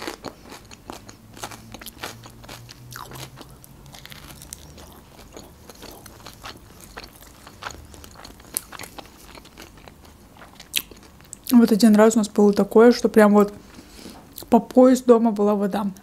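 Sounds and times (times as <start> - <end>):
chewing and crunching food: 0.0 - 12.7.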